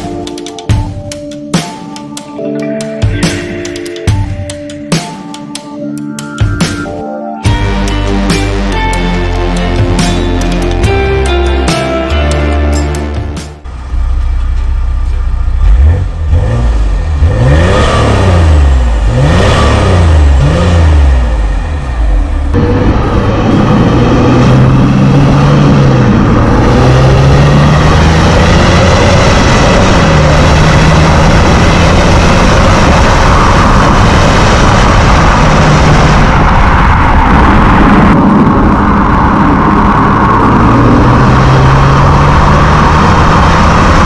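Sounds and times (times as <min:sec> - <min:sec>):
diesel engine revving: 0:07.5 - 0:44.0
loud rushing noise: 0:13.5 - 0:44.0.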